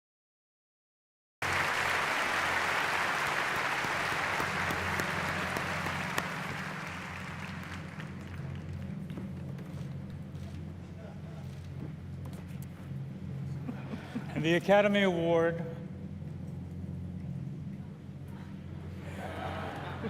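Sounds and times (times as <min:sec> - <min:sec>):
large audience applauding: 0:01.4 - 0:09.1
low steady hum: 0:01.4 - 0:20.0.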